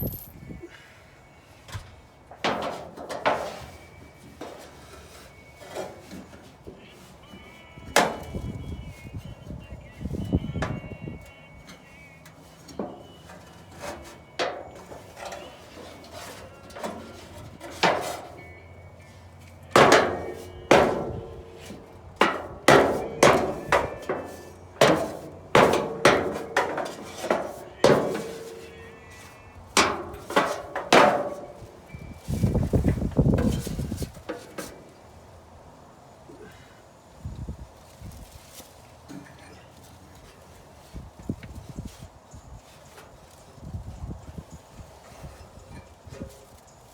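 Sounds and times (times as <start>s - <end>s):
knocks and clanks of metal panels: 2.4s - 3.6s, 19.8s - 28.7s, 29.8s - 31.6s.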